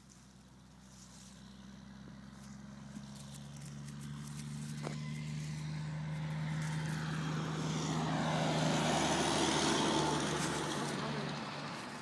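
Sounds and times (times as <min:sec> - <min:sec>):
passing engine drone: 0:01.2 - 0:12.0.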